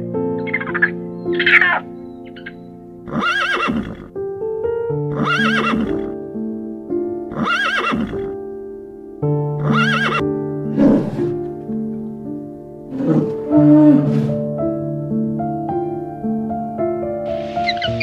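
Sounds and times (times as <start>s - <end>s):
piano music: 0.0s - 18.0s
horse whinnying: 3.1s - 4.1s, 5.1s - 6.2s, 7.3s - 8.4s, 9.6s - 11.4s, 12.9s - 14.4s.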